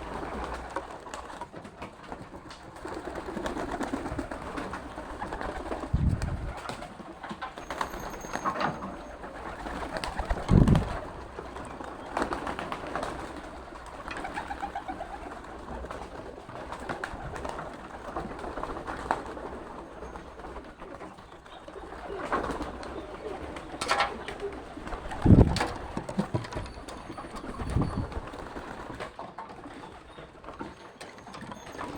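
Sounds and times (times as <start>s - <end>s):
pigeons cooing: 9.2s - 19.6s, 20.2s - 27.6s.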